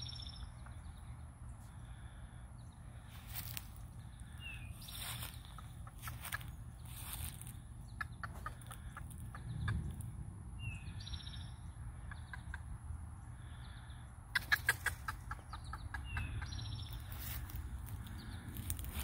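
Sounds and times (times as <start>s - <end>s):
bird calling: 0.0s - 10.0s, 10.6s - 19.0s
low steady rumble: 0.0s - 19.0s.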